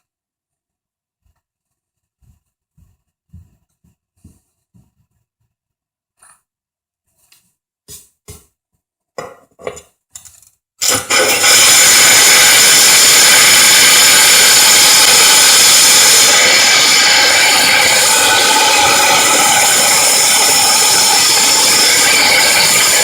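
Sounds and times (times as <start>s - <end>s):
drill cutting into tile: 10.8s - 23.0s.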